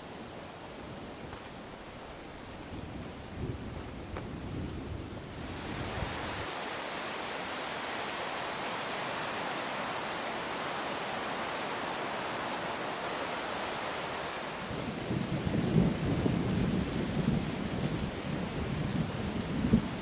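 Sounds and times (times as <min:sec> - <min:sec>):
heavy rain falling: 0:00.6 - 0:20.0.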